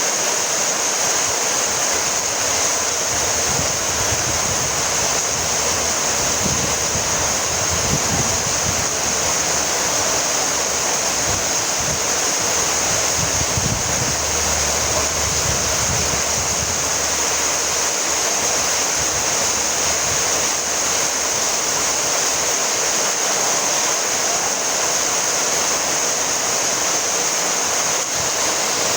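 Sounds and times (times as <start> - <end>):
steady rainfall: 0.0 - 28.9
low rumbling: 1.9 - 20.7.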